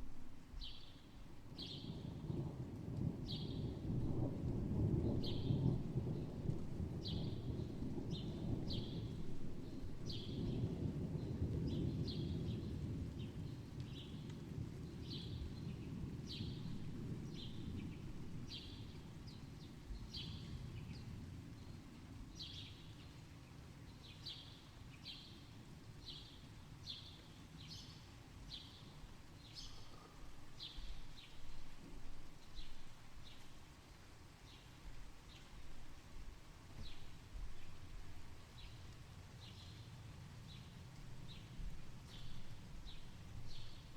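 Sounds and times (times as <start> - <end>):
thunder rumbling: 0.0 - 22.5, 35.0 - 43.9.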